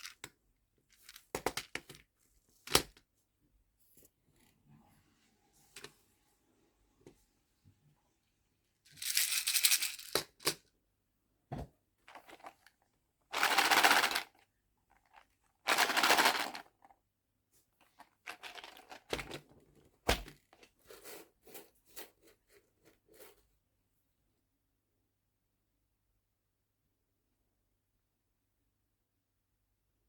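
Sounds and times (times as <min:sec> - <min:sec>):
plastic boxes rattling: 0:13.4 - 0:14.3, 0:15.7 - 0:16.7.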